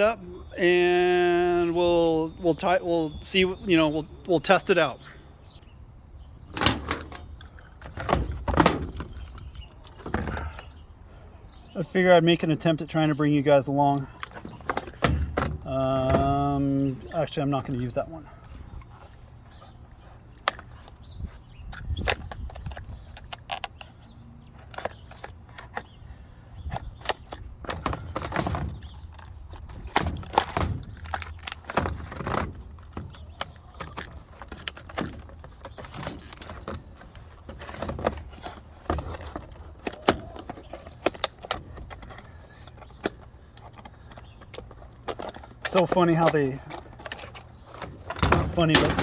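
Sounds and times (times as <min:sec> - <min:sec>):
metal parts clinking: 0:06.4 - 0:10.8, 0:14.0 - 0:18.9, 0:20.4 - 0:26.0, 0:26.8 - 0:49.0.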